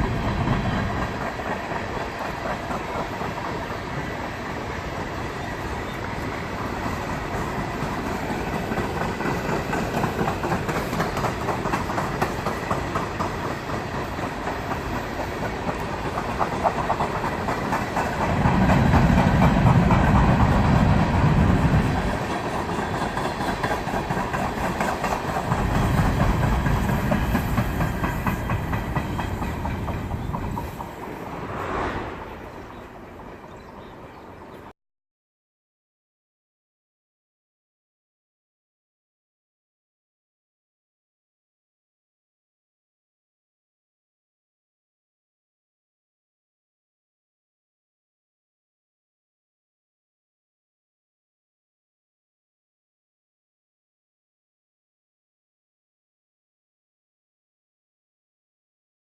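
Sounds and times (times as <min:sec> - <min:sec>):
train wheels clattering over rail joints: 0:07.1 - 0:31.2.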